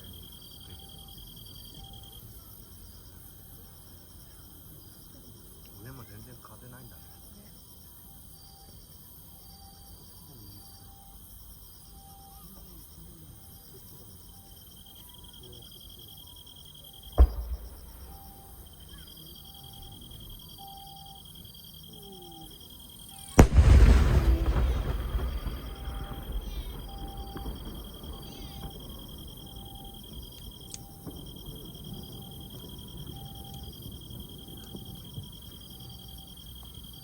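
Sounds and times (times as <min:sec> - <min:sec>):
insects chirping: 0:00.0 - 0:37.0
fireworks bangs with crackle: 0:17.0 - 0:20.4, 0:23.3 - 0:37.0.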